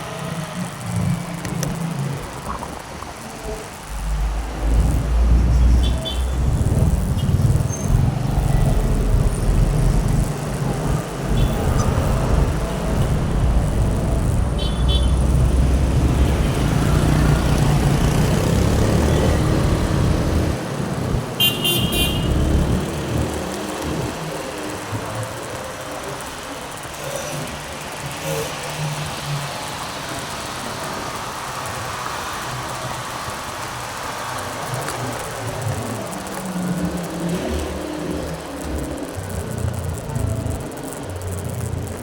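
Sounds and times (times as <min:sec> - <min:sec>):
wind rumble on microphone: 0:03.9 - 0:21.4
motorcycle engine: 0:04.0 - 0:25.7.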